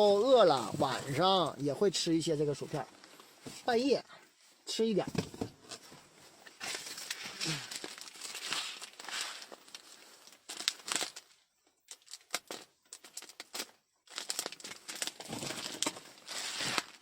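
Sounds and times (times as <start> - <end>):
plastic packaging crinkling: 6.6 - 17.0.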